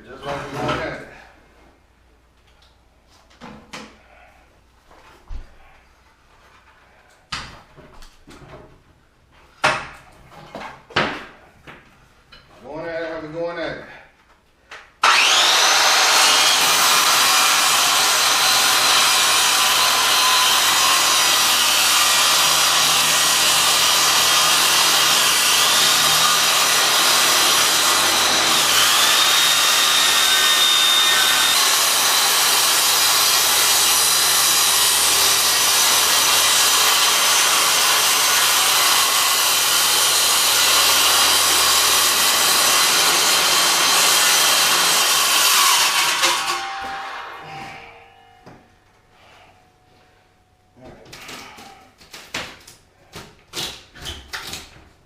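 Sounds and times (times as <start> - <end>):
power saw cutting wood: 15.0 - 48.3.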